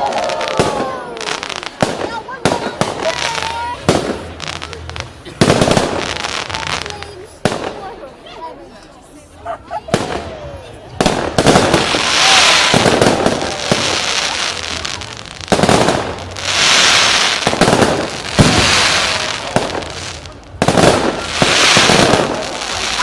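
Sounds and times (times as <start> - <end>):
high hissing of fireworks: 0.0 - 8.2, 9.8 - 23.0.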